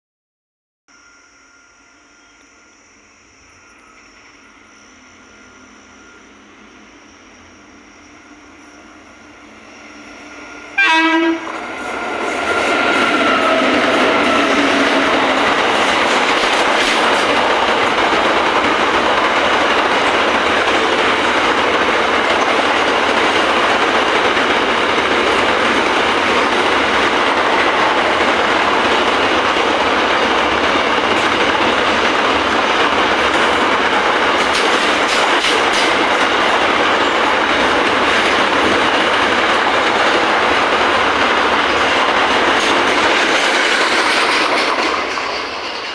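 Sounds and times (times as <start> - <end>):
wagons rumbling past on track: 10.2 - 45.9
train horn blast: 10.8 - 11.6.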